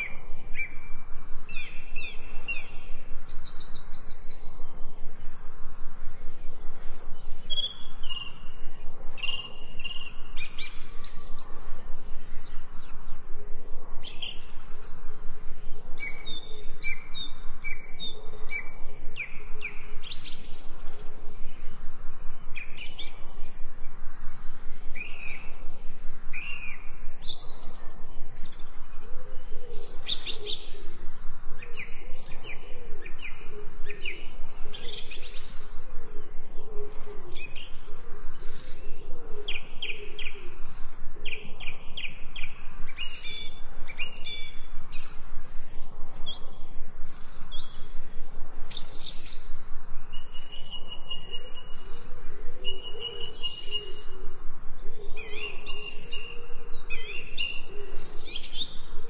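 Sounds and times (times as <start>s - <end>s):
songbirds chirping chorus: 0.0s - 59.0s.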